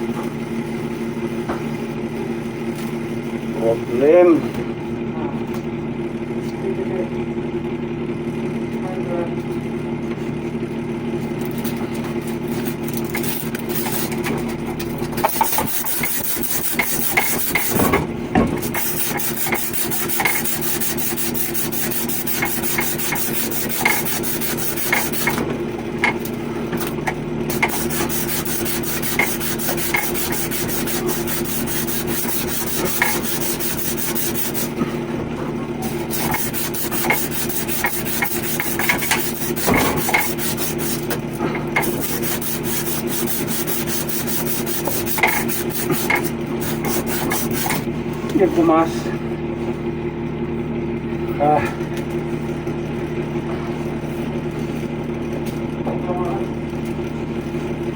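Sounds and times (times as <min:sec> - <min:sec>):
machine hum: 0:00.0 - 0:57.9
scraping on copper pipe: 0:12.3 - 0:14.4, 0:15.1 - 0:26.4, 0:27.5 - 0:35.0, 0:35.8 - 0:49.1.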